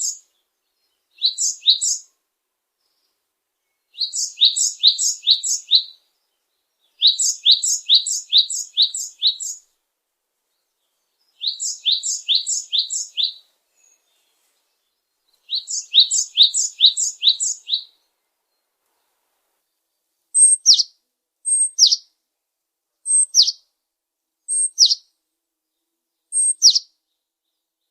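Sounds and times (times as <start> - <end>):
songbird singing high notes: 1.2 - 2.0, 4.0 - 6.0, 7.0 - 9.6, 11.4 - 13.4, 15.5 - 18.0, 20.4 - 20.9, 21.5 - 22.0, 23.1 - 23.6, 24.5 - 25.0, 26.3 - 26.9.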